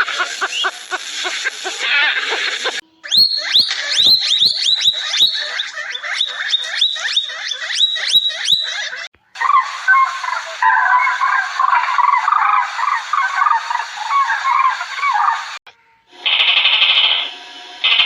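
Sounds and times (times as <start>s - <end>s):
animal sound: 0.0s - 17.0s
high-pitched animal calls: 0.0s - 17.3s.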